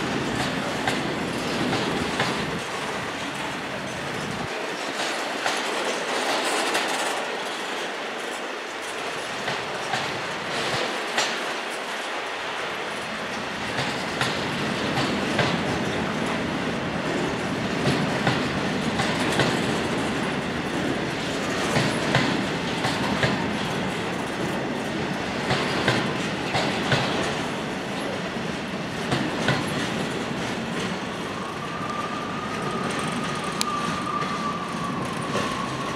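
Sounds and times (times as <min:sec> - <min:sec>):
train wagons rolling over rail joints: 0:00.0 - 0:35.9
high wheel squeal: 0:31.3 - 0:35.9.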